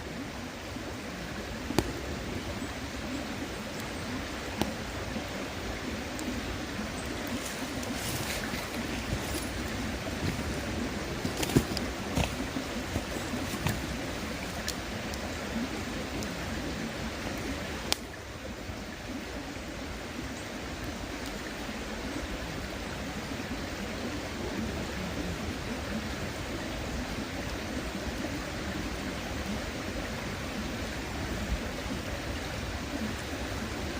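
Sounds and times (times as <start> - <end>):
campfire wood crackling: 0.0 - 21.8
river rushing: 0.0 - 33.9
fire popping: 1.6 - 2.6, 6.2 - 16.4, 17.2 - 18.2.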